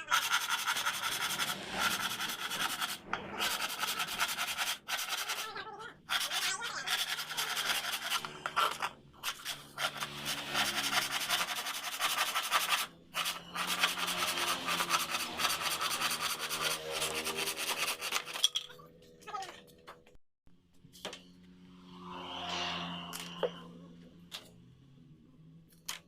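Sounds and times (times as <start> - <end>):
abrasive scraping of wood: 0.1 - 18.5.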